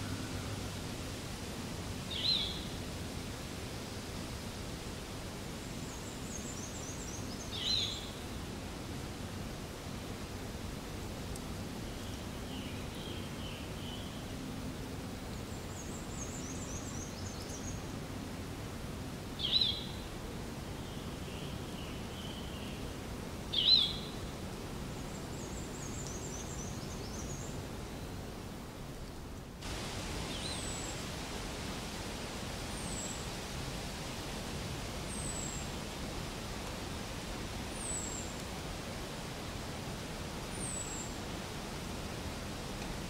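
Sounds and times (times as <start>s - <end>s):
steady outdoor hiss: 0.0s - 43.0s
wild birds chirping: 29.7s - 34.2s.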